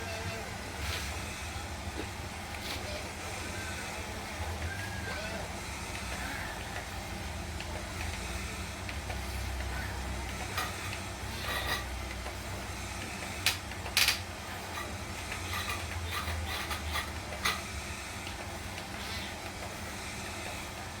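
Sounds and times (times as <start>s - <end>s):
sharp clicks and knocks: 13.2s - 18.9s.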